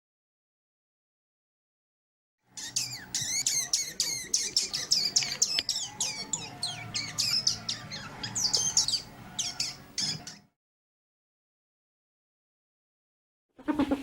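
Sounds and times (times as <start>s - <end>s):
degu chirping squeaks: 2.5s - 10.5s.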